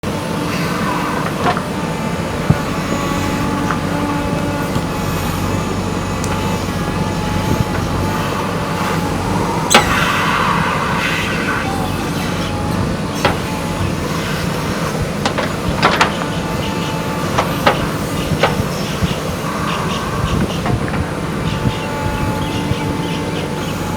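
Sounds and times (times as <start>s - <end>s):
diesel engine running: 0.0s - 23.9s
sharp metal knocks and clanks: 9.7s - 10.1s, 13.2s - 13.9s, 15.2s - 16.6s, 17.3s - 18.7s.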